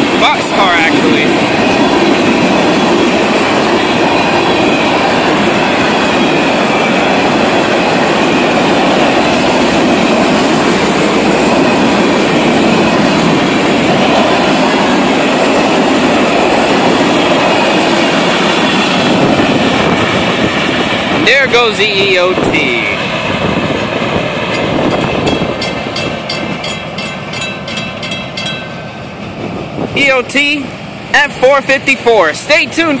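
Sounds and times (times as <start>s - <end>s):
train wheels clattering on rails: 23.0s - 29.5s.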